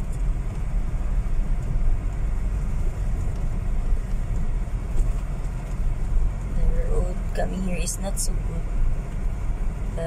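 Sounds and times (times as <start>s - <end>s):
car driving on gravel road: 0.0s - 10.0s.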